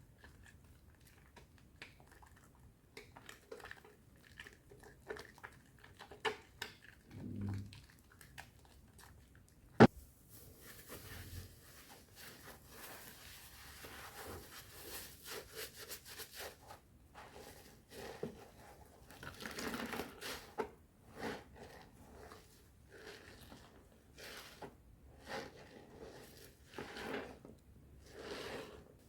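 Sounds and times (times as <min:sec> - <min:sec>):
soap lather squishing: 0:00.0 - 0:09.8, 0:21.4 - 0:27.4.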